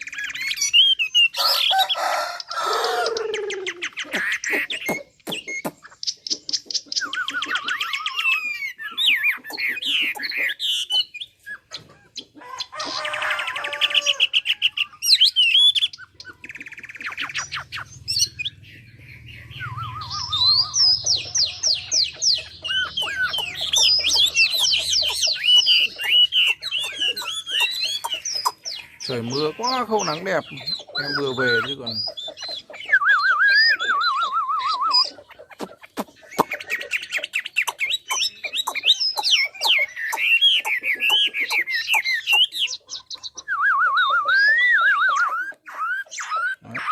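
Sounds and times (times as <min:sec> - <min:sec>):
songbird singing trills and whistles: 0:00.0 - 0:46.9.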